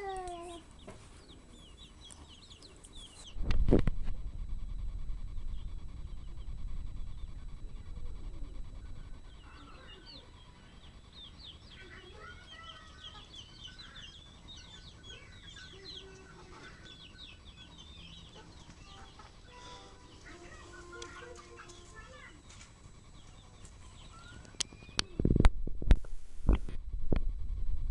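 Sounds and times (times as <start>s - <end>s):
chickens calling: 0.0s - 3.3s, 8.2s - 25.2s
low rumble: 3.3s - 9.5s.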